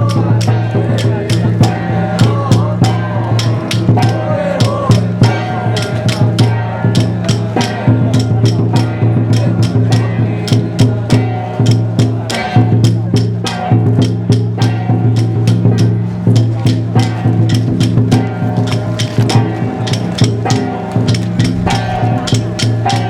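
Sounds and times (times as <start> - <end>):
chanting voices: 0.0 - 15.4, 16.3 - 23.0
fast percussion strikes: 0.0 - 23.0
steady low drone: 20.8 - 23.0.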